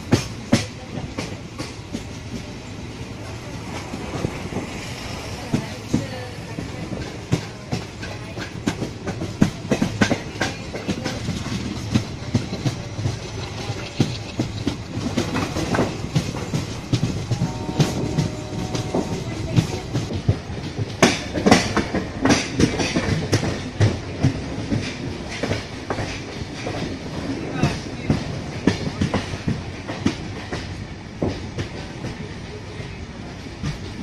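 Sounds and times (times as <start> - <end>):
train rolling noise: 0.0 - 34.0
wheels clattering over rail joints: 5.4 - 32.3.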